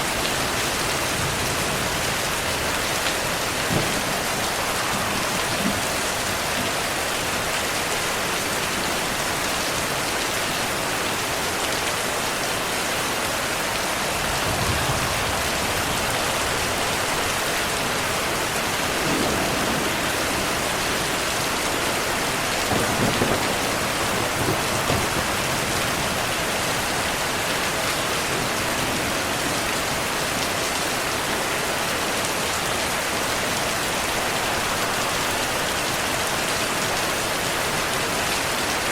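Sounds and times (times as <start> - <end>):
heavy rain: 0.0 - 38.9
low thunder rumbles: 0.1 - 7.4, 13.7 - 26.8.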